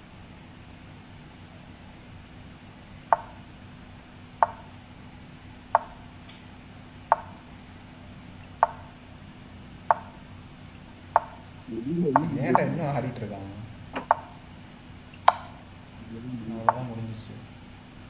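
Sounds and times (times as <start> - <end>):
chess move wooden clicks: 15.2 - 15.6, 16.6 - 17.0.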